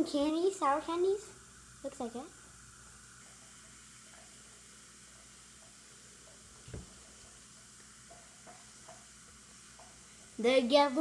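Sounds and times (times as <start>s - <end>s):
effervescent tablet fizzing: 0.0s - 11.0s
soft low thump: 6.7s - 6.9s.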